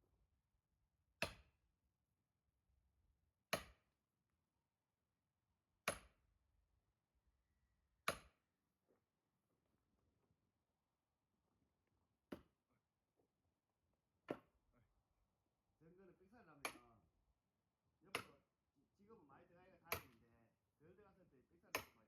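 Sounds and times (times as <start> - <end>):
axe chopping log: 1.2 - 1.6, 3.5 - 3.9, 5.8 - 6.2, 8.0 - 8.4, 12.3 - 12.6, 14.2 - 14.6, 18.1 - 18.4, 19.9 - 20.2, 21.7 - 22.0.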